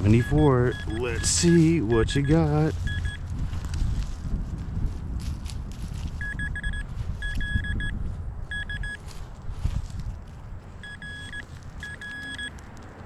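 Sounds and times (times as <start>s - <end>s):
metal detector beeping: 0.0s - 3.2s, 6.2s - 9.0s, 10.8s - 12.6s.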